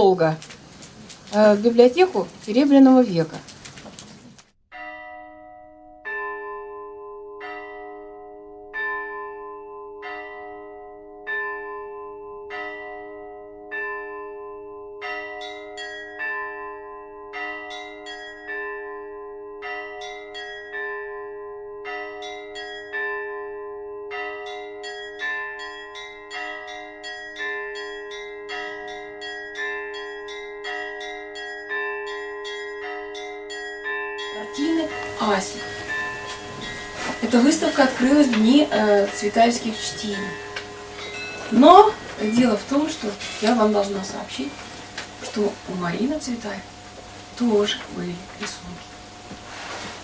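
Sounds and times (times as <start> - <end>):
bells ringing: 4.8 - 49.3
steady low hum: 34.4 - 50.0.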